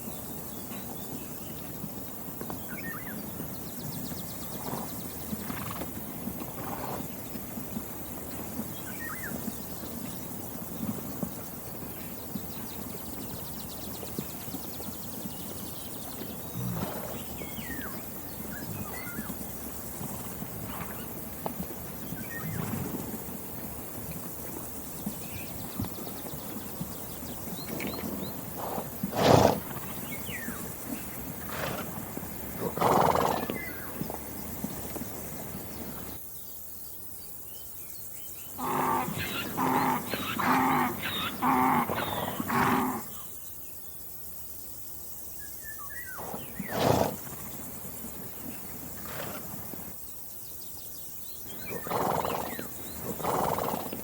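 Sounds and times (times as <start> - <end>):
small birds chirping: 37.5 - 43.7
loud animal call: 38.6 - 43.1, 51.7 - 53.9.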